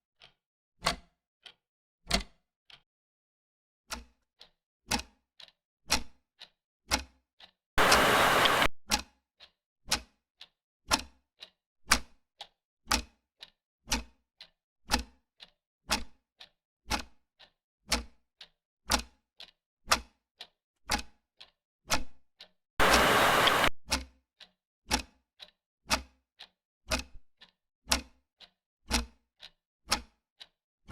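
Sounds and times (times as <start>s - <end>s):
clock ticking: 0.2s - 2.8s, 3.9s - 16.2s, 16.9s - 24.0s, 24.9s - 30.5s
loud hiss burst: 7.8s - 8.7s, 22.8s - 23.7s.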